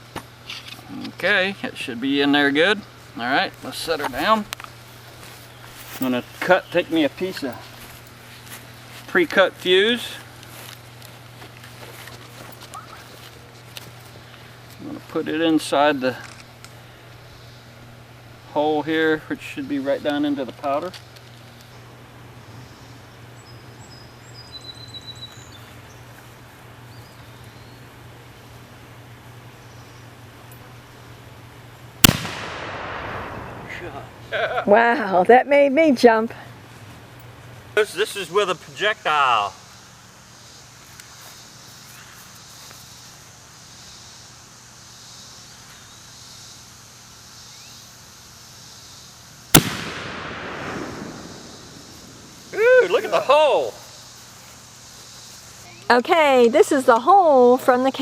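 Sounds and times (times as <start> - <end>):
steady low hum: 0.0 - 48.6, 49.2 - 56.4
small birds chirping: 1.3 - 31.3
mini cannon bang: 32.0 - 34.0, 49.6 - 51.8.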